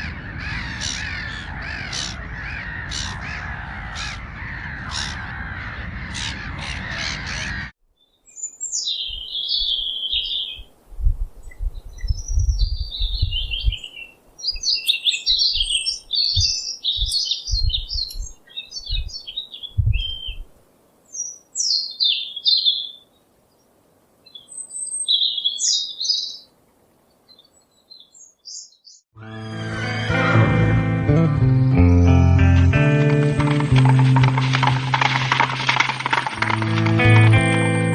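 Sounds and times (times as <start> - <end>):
crow cawing: 0.0 - 7.7
small bird chirping: 8.0 - 10.7, 11.4 - 26.5
low thumps: 32.3 - 37.9.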